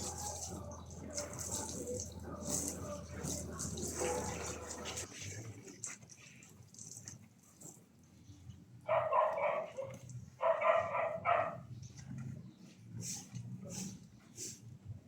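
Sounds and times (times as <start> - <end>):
dog barking: 3.8 - 4.7, 8.9 - 11.7.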